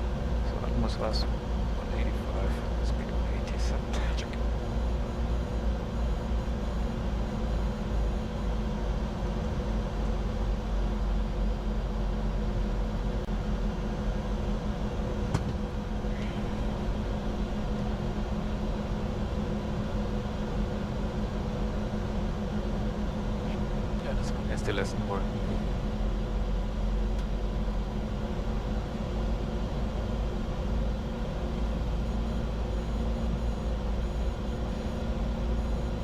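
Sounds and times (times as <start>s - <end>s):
low even hum: 0.0s - 36.0s.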